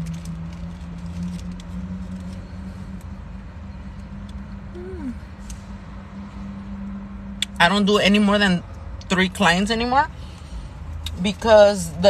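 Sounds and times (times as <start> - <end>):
food wrapper rustling: 0.0 - 2.4
idling car hum: 0.0 - 12.0.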